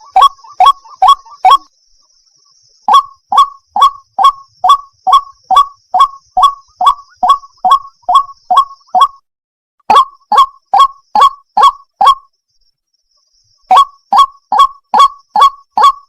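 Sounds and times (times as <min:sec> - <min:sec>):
waterhen calling: 0:00.0 - 0:01.7, 0:02.9 - 0:09.2, 0:09.9 - 0:12.2, 0:13.7 - 0:16.0.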